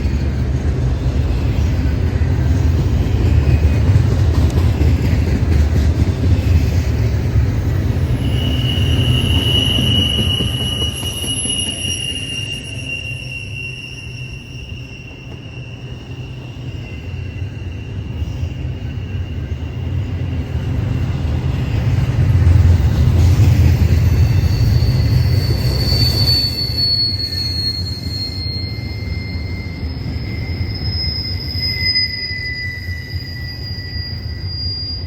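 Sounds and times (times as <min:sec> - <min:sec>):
freight train wheels rumbling: 0:00.0 - 0:35.0
high-pitched wheel squeal: 0:06.3 - 0:22.0, 0:23.2 - 0:35.0.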